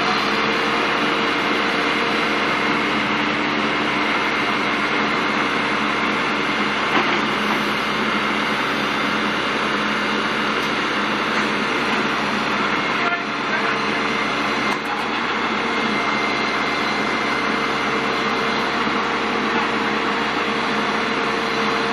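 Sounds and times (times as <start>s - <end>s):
backhoe diesel engine running: 0.0s - 21.9s.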